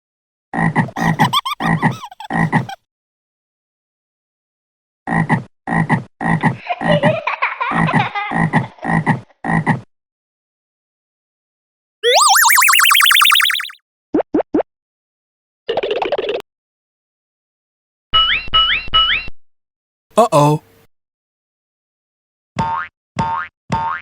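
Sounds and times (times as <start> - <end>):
cartoon frog croaking: 12.0 - 13.8.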